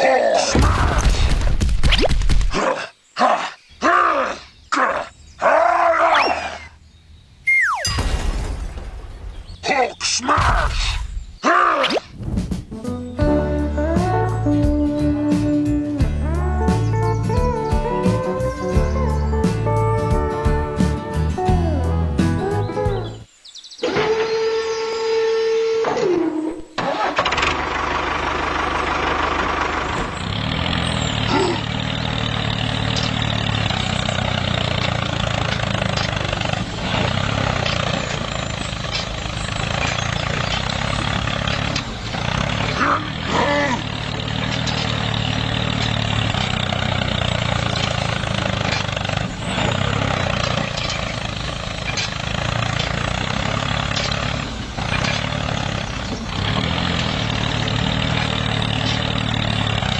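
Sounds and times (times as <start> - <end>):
tractor engine running: 12.4 - 23.3, 26.7 - 59.9
knocks and clatters: 29.2 - 59.9.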